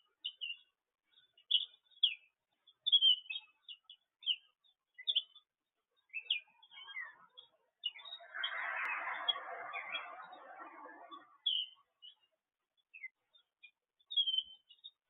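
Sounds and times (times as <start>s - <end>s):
songbirds chirping: 0.0s - 15.0s
low rushing noise: 8.1s - 11.4s.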